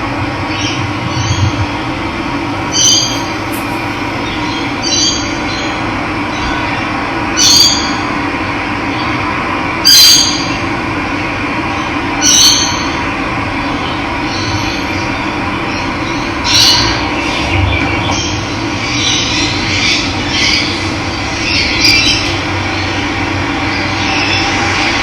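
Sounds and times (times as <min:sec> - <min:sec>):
bird giving short call: 0:02.6 - 0:05.1.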